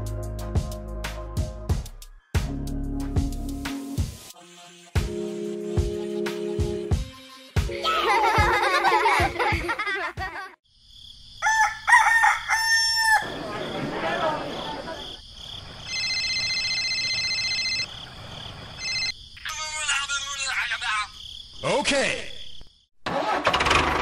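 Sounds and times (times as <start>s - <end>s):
rooster crowing: 11.4s - 15.0s
electronic ringing tone: 15.9s - 17.9s, 18.8s - 19.2s.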